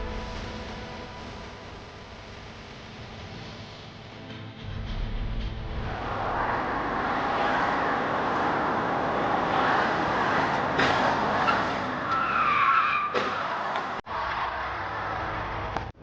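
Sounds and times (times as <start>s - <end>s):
car road and engine noise: 0.0s - 16.0s
tyre squeal: 10.7s - 14.0s.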